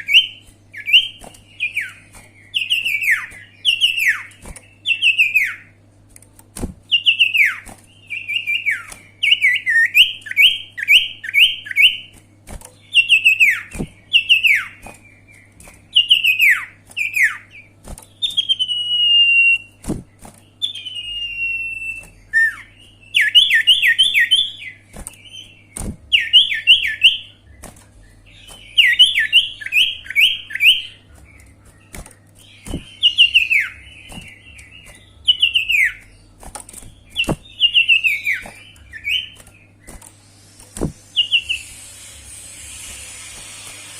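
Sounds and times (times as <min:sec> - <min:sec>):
bird singing whistles: 0:06.9 - 0:12.1, 0:15.9 - 0:27.6, 0:28.3 - 0:36.1, 0:37.1 - 0:40.0, 0:40.7 - 0:42.0.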